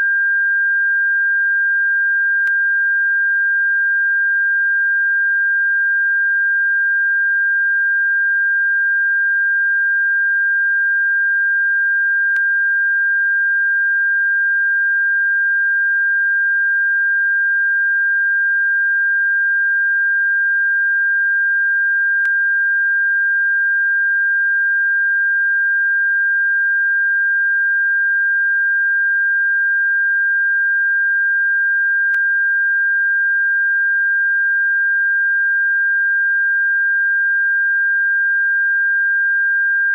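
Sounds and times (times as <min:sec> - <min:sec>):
high pitched sine tone: 0:00.0 - 0:39.9.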